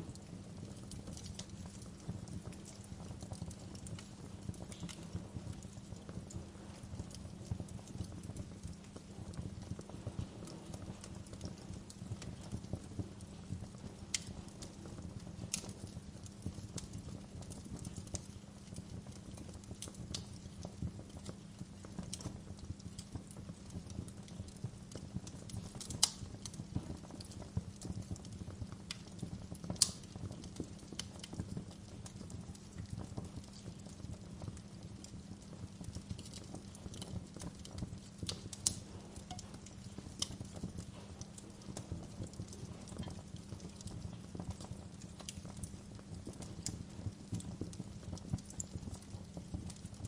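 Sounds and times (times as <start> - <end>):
wood fire crackling: 0.0 - 50.0
sharp fire pops: 25.3 - 35.2, 35.9 - 50.0.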